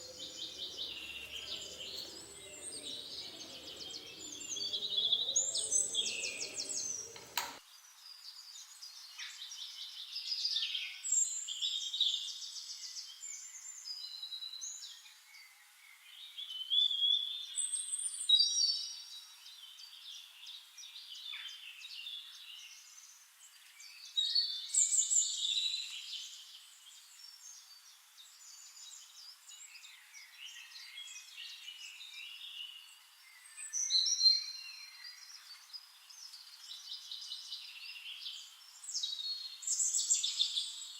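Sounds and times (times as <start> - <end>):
birds chirping and singing: 0.0 - 7.6.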